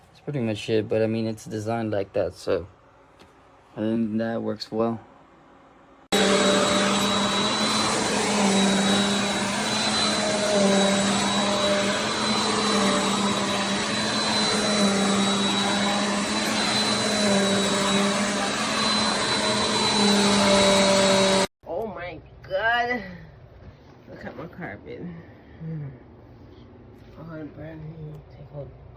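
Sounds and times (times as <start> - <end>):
vacuum cleaner running: 6.1 - 21.5.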